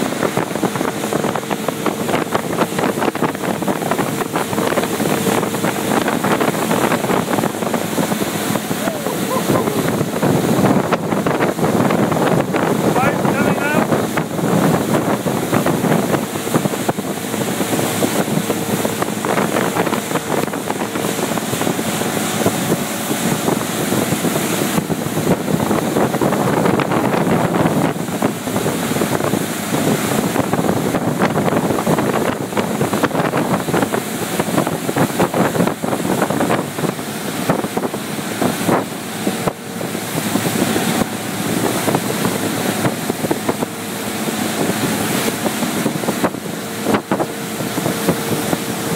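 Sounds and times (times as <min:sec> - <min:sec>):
motorboat engine hum: 0:00.0 - 0:48.9
water rushing: 0:00.0 - 0:48.9
wind buffeting microphone: 0:00.0 - 0:48.9.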